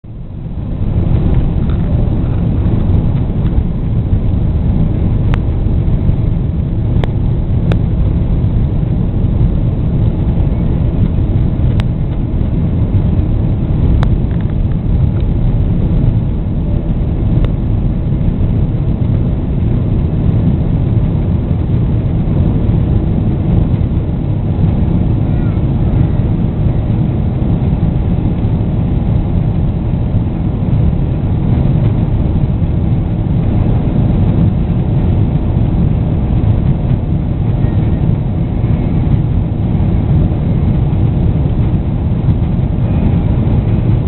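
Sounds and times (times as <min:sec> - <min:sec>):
jet engines rumbling at takeoff: 0:00.0 - 0:44.0.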